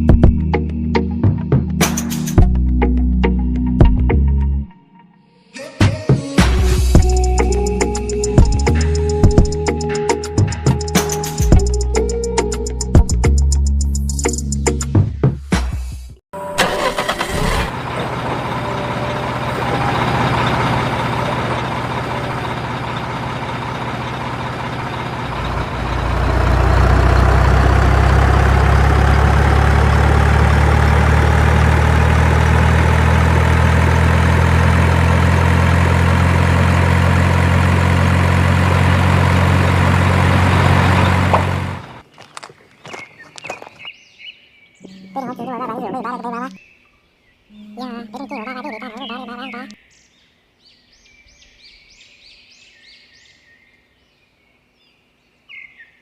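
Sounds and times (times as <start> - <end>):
tractor engine running: 6.6 - 14.6, 16.4 - 43.0.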